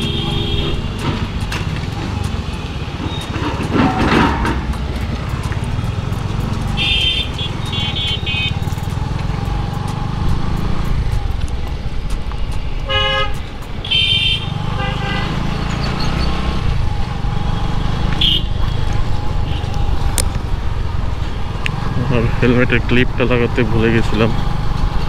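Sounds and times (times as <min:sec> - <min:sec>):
vehicle horns honking: 0:00.0 - 0:01.3, 0:06.8 - 0:08.7, 0:12.8 - 0:16.4, 0:17.7 - 0:18.8
motorcycle engine rumble: 0:00.0 - 0:25.0.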